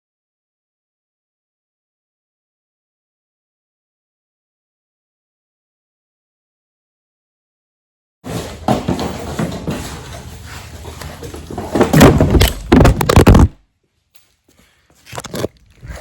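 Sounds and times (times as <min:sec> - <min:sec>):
hard objects clattering: 0:08.3 - 0:13.6
loud thuds: 0:11.3 - 0:13.6.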